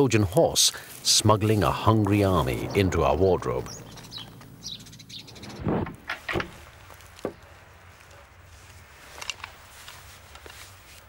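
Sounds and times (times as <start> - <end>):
birds chirping: 0.0 - 8.5.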